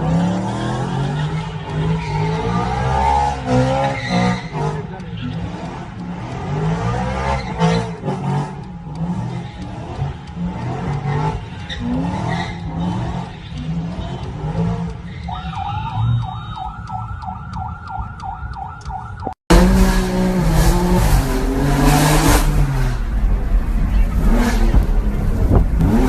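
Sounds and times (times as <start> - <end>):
high wavering tyre squeal: 0.0 - 5.4, 9.1 - 16.7
car engines revving: 0.0 - 26.0
car exhaust rumbling: 19.5 - 26.0.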